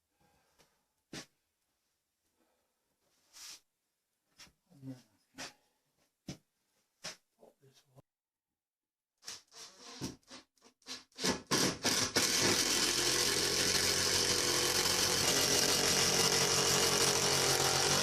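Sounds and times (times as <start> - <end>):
electric power tool motor whine: 12.1 - 18.0.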